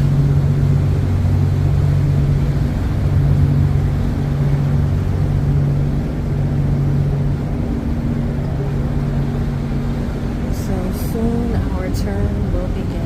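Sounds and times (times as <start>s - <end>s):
ship machinery humming: 0.0s - 13.0s.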